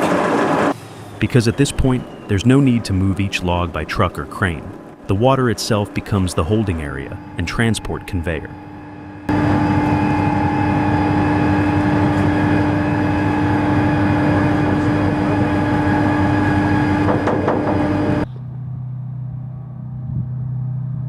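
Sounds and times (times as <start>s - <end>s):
constant whine: 0.0s - 21.0s
heavy engine running: 0.0s - 21.0s.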